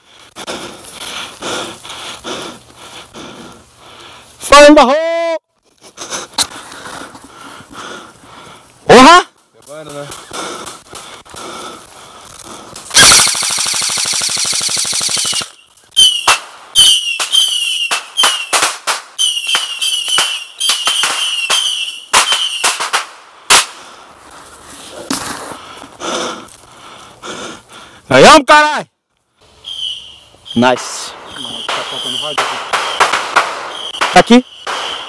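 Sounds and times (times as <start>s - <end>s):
fireworks crackling: 0.0s - 4.8s, 5.6s - 27.8s, 29.4s - 35.0s
fireworks cracks with whistle: 12.8s - 23.8s, 29.6s - 35.0s.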